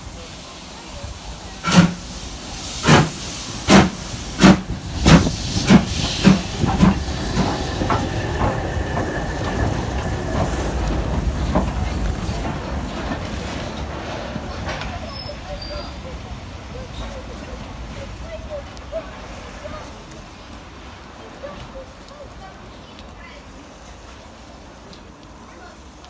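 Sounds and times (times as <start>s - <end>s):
steam locomotive exhaust chuffs: 0.0s - 18.2s.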